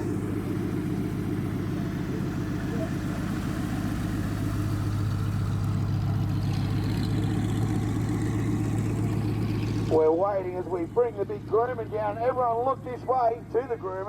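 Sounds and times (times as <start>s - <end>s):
piston aircraft engine droning: 0.0s - 14.0s.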